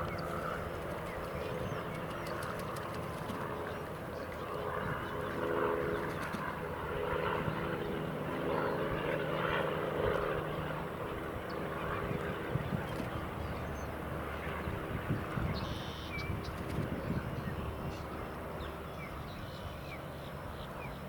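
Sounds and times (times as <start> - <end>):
distant engine drone: 0.0 - 21.0.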